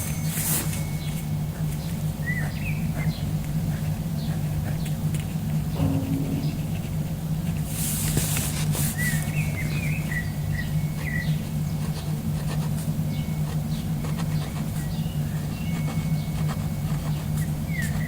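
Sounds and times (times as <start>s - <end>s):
steady low hum: 0.0s - 8.8s
small birds chirping: 0.8s - 6.6s, 9.0s - 12.1s, 12.7s - 18.0s.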